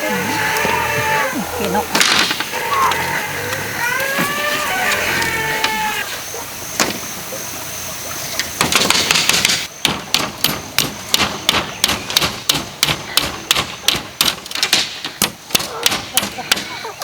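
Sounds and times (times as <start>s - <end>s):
tool knocking on bamboo: 8.6s - 16.7s.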